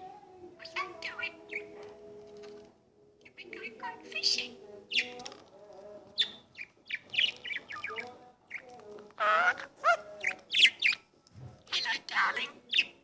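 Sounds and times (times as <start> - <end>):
budgerigar chirping and warbling: 0.6 - 1.8, 3.5 - 5.2, 6.2 - 11.0, 11.7 - 13.0.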